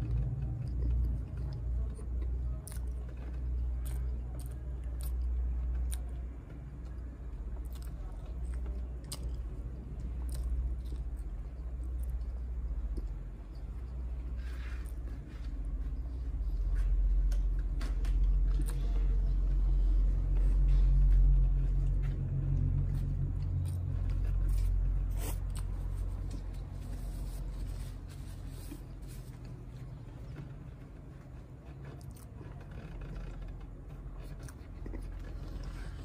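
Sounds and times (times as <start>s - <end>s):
person chewing food: 0.0s - 36.0s
low rumble: 9.4s - 31.0s.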